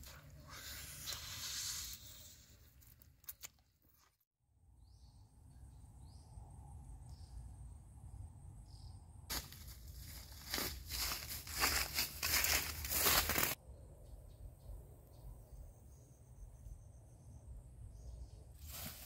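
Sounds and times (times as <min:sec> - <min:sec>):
rustling noise: 0:09.3 - 0:13.6.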